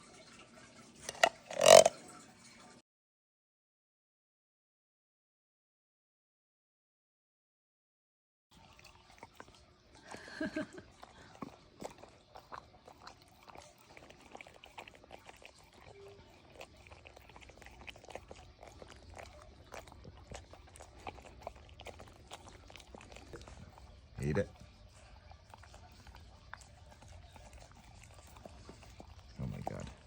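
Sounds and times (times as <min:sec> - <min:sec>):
dog chewing and licking: 0:01.0 - 0:02.1, 0:08.5 - 0:30.0.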